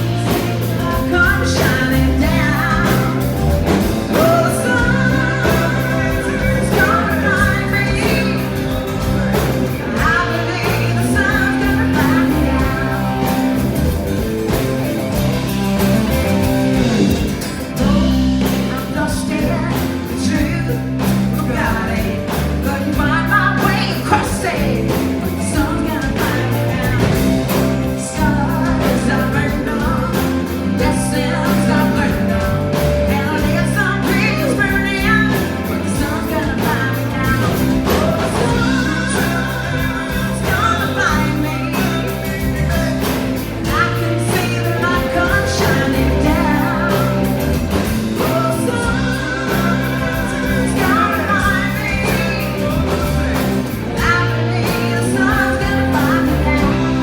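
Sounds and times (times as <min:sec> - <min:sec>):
person singing: 0:00.0 - 0:14.9, 0:15.8 - 0:57.0
live band playing: 0:00.0 - 0:57.0
steady drum beat: 0:00.0 - 0:57.0
strummed guitar: 0:00.0 - 0:57.0.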